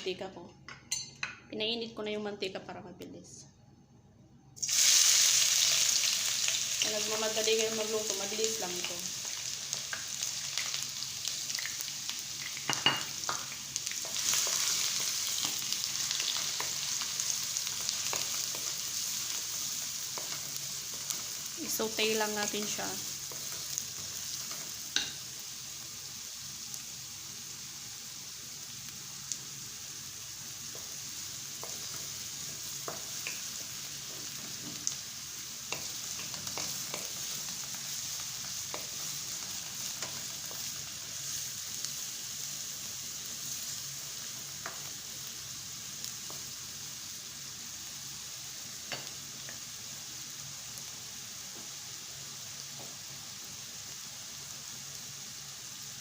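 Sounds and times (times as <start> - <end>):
food sizzling in oil: 4.6 - 56.0.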